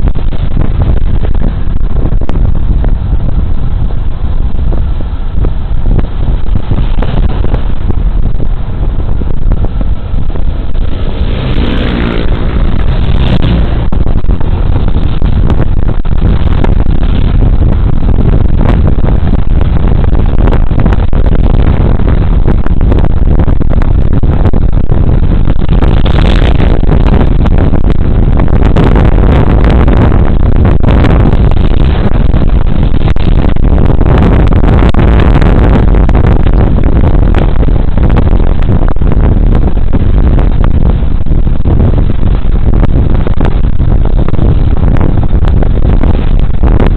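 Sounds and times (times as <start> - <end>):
wind rumble on microphone: 0.0 - 46.9
scooter engine running: 10.8 - 13.9.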